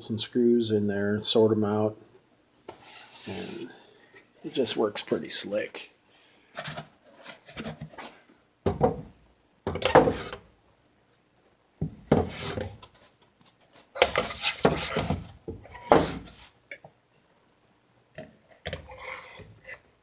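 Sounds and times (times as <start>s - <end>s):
rubbing sounds: 2.7s - 4.8s, 12.2s - 15.2s
knocks and thunks on workbench: 8.6s - 10.4s, 11.8s - 12.8s, 14.0s - 16.3s.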